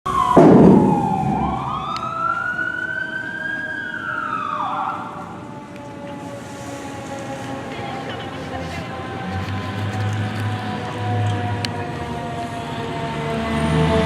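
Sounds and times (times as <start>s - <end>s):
loud low rumble: 0.1s - 2.2s
fire engine siren wailing: 0.1s - 14.0s.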